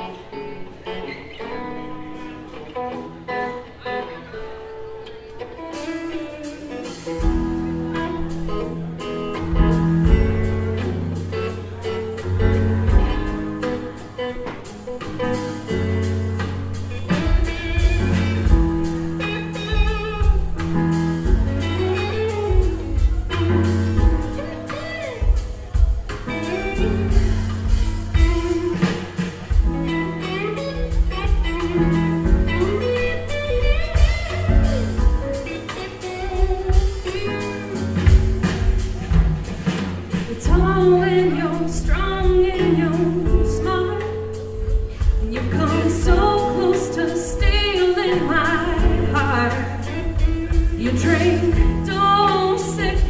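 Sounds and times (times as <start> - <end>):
country band playing: 0.0 - 53.0
woman singing: 40.2 - 44.4, 45.2 - 53.0.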